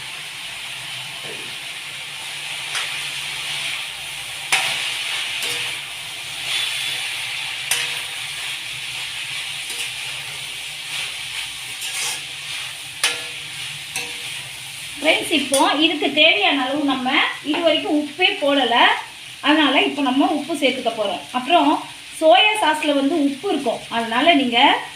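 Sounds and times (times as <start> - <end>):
food sizzling in a pan: 0.0 - 24.9
spatula knocking against pan: 13.0 - 13.4.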